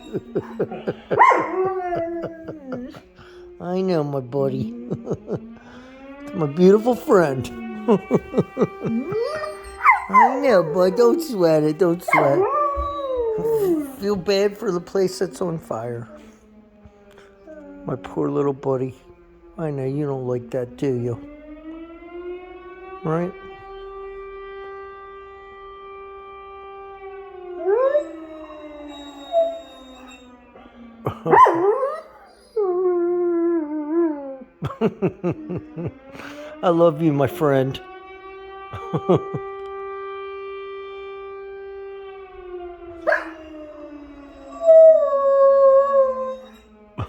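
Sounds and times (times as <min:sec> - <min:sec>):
dog howling: 0:00.0 - 0:05.5, 0:06.3 - 0:18.6, 0:27.4 - 0:34.6, 0:43.0 - 0:47.0
siren wailing: 0:00.0 - 0:47.0.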